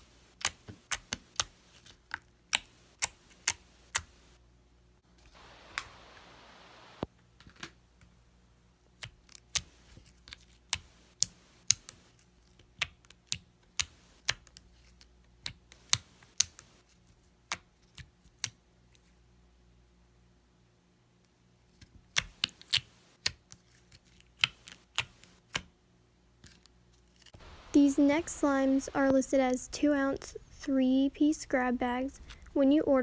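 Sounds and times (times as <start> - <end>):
soft hiss: 5.0 - 7.1, 27.0 - 32.7.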